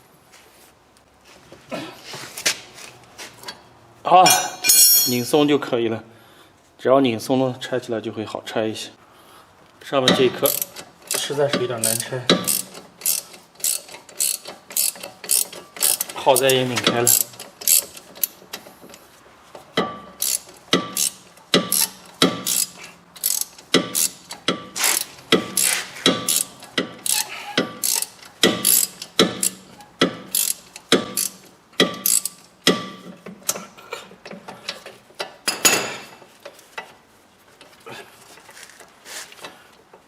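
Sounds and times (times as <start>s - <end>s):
ratchet wrench clicking: 10.4s - 16.5s, 17.1s - 18.4s, 20.2s - 33.6s
metal scrape: 24.7s - 26.1s.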